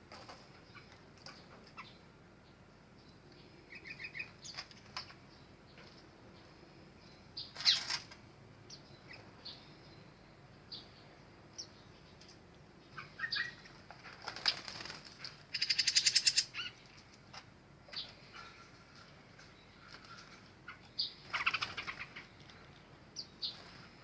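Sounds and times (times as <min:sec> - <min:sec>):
high bird chirps: 0:12.9 - 0:13.7, 0:15.5 - 0:16.8.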